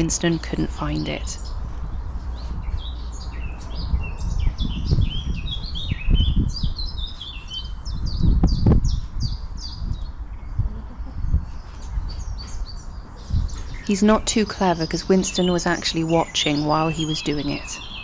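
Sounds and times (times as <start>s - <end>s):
birds chirping: 0.0s - 18.0s
low rumbles and thumps: 7.8s - 13.9s.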